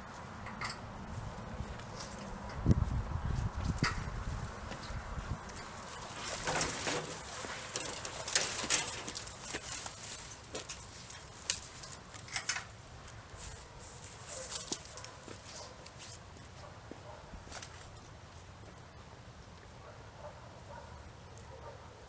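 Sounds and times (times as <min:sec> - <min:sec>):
branches and leaves rustling: 0:00.0 - 0:19.9.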